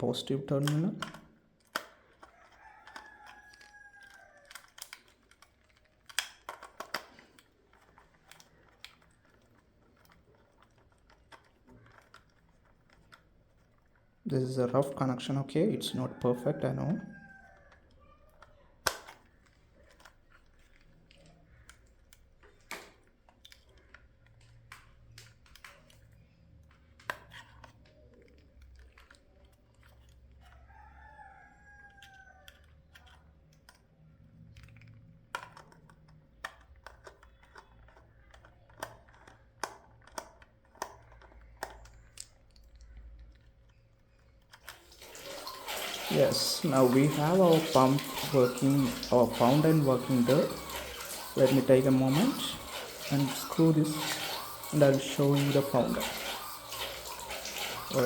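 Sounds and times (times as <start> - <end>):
clicks and taps of wires: 0.5 - 13.7.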